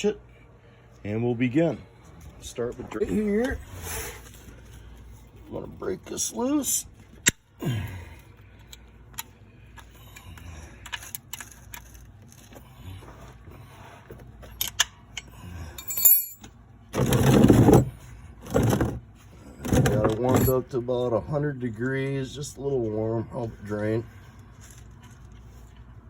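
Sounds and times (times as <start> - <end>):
hand tools clicking and clinking: 14.6 - 16.5.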